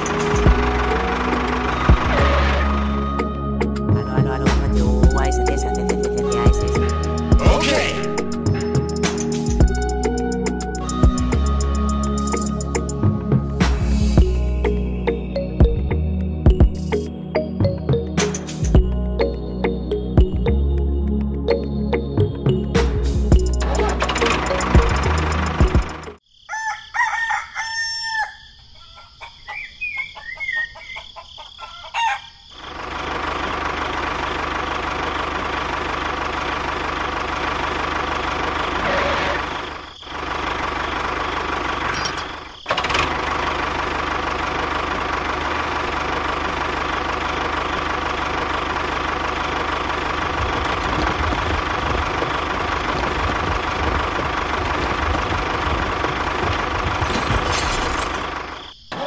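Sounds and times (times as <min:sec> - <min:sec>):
rooster crowing and clucking: 0:26.4 - 0:32.6.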